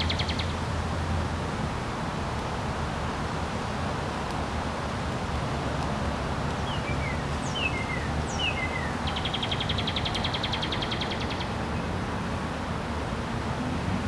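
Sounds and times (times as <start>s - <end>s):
birds chirping and trilling: 0.0s - 0.6s, 6.6s - 11.6s.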